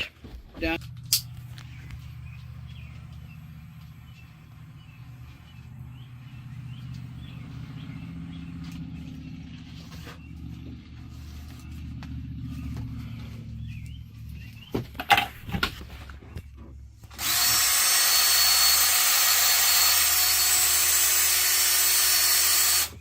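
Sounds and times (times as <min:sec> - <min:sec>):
vehicle engine idling: 0:00.7 - 0:17.4.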